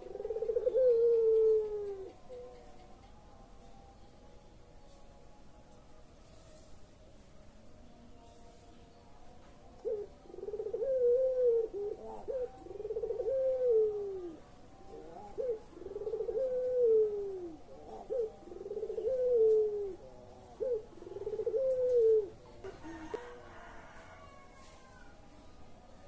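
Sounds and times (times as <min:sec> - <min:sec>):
dove cooing: 0:00.0 - 0:03.1, 0:09.8 - 0:23.7.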